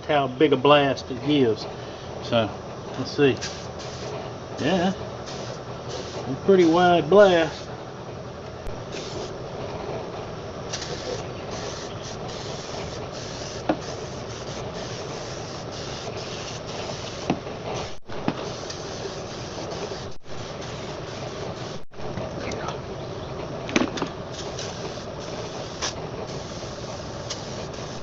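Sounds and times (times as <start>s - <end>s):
aerosol spray hissing: 3.4s - 4.7s, 5.3s - 6.8s, 10.7s - 21.8s, 24.4s - 28.0s.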